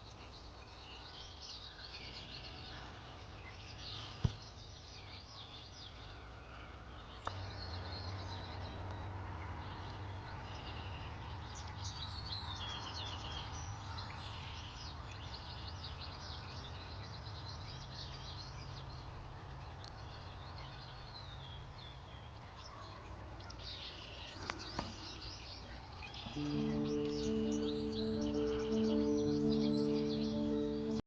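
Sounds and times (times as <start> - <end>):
birds chirping and trilling: 0.0 - 31.0
soft sustained music: 26.2 - 31.0.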